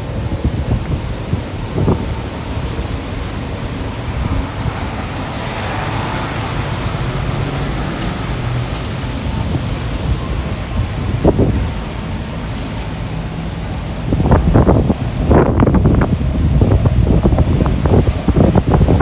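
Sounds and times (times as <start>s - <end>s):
rain: 0.0s - 19.0s
traffic on wet streets: 0.0s - 19.0s
wind buffeting microphone: 0.0s - 19.0s
vehicle passing: 4.0s - 11.6s.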